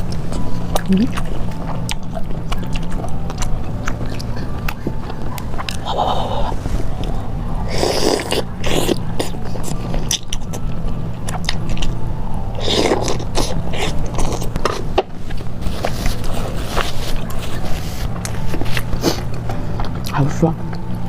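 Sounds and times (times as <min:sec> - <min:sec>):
person biting and chewing food: 0:00.0 - 0:20.8.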